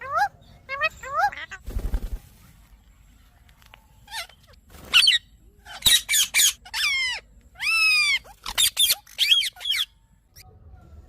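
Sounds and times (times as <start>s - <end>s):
parakeet squawking: 4.1s - 10.0s.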